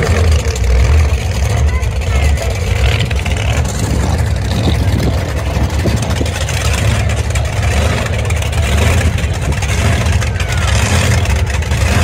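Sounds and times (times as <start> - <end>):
truck engine running at low revs: 0.0 - 12.0.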